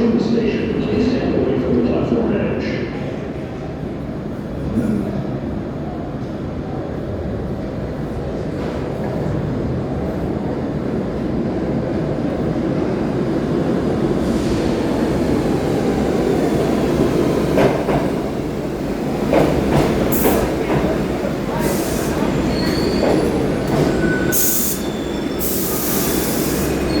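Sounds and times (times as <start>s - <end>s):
subway train rumble: 0.0s - 27.0s
wheel squeals and clanks: 22.5s - 27.0s.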